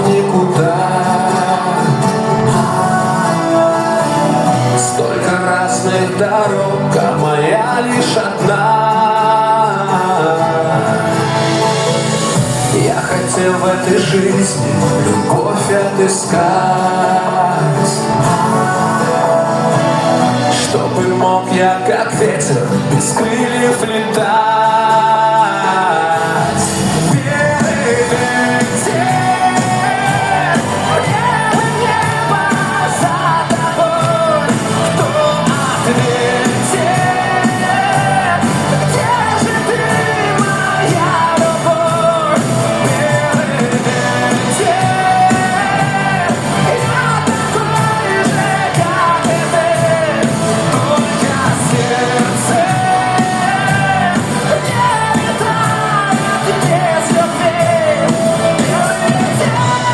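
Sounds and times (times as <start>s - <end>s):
man singing: 0.0s - 59.9s
pop-rock band with drums: 0.0s - 59.9s.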